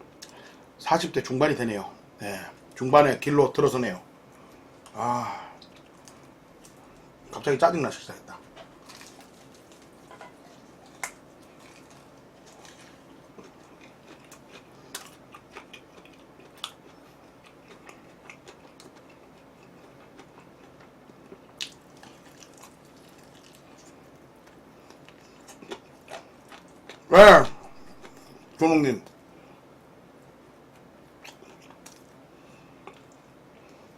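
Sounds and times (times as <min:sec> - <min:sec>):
person chewing food: 0:08.4 - 0:27.1, 0:27.7 - 0:28.6, 0:30.7 - 0:33.9
crisp crunches: 0:08.7 - 0:16.8.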